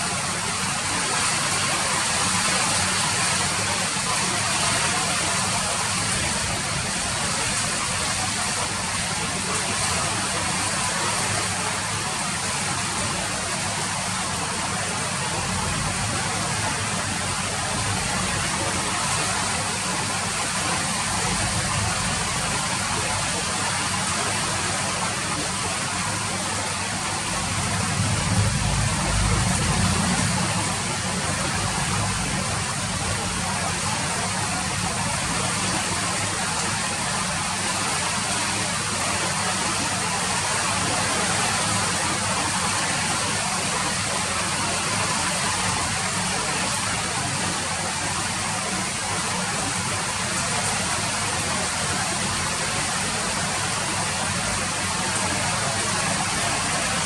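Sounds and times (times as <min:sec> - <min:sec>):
steady rain falling: 0:00.0 - 0:57.0
low rumble: 0:27.4 - 0:33.4.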